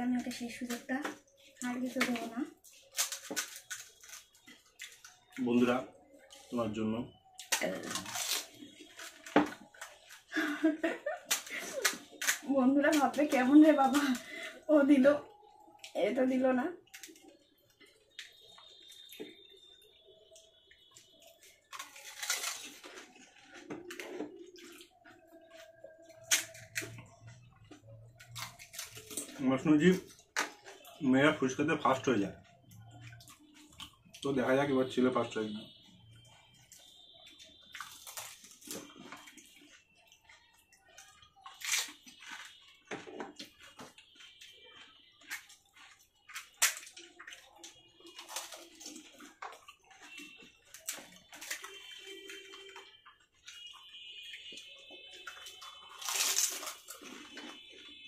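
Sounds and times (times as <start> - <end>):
crisp shells crunching: 2.2 - 5.4, 7.4 - 10.3, 21.7 - 24.7, 37.7 - 39.4, 55.6 - 57.7
wet crunching and slurping: 35.7 - 58.0.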